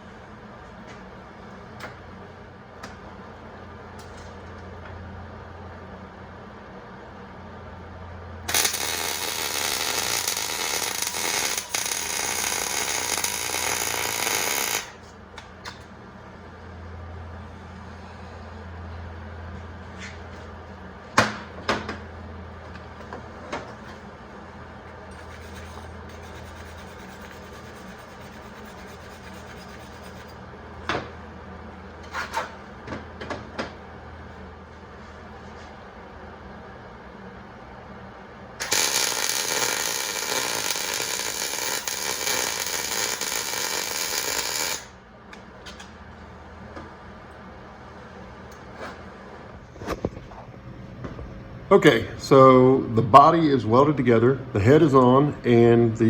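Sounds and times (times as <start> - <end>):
welder hissing: 8.5 - 15.0, 38.6 - 44.9.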